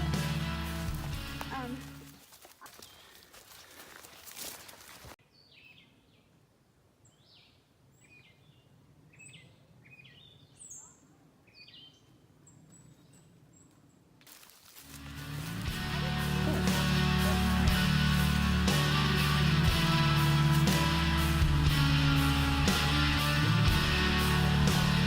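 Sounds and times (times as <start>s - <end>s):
music: 0.0s - 2.1s, 14.9s - 25.0s
songbirds chirping: 0.0s - 25.0s.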